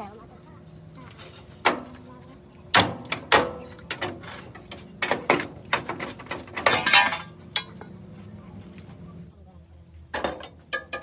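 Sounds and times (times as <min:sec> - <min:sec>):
metal knocks and clanks: 0:02.8 - 0:07.9.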